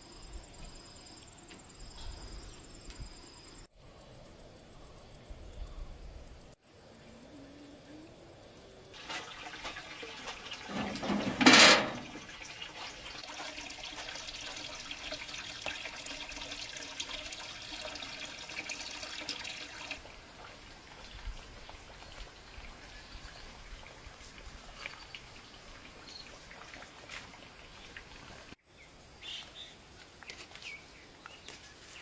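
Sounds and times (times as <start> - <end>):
water running and splashing: 9.0 - 28.6.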